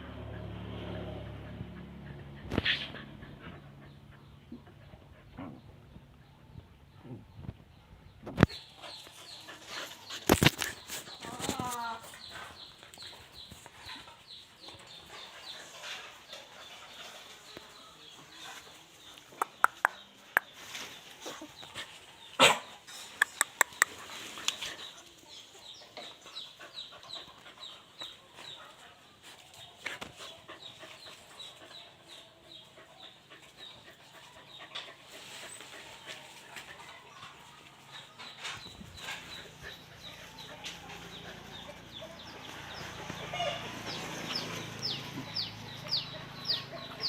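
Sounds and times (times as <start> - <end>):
birds chirping: 1.8 - 47.0
chicks chirping: 37.9 - 47.0.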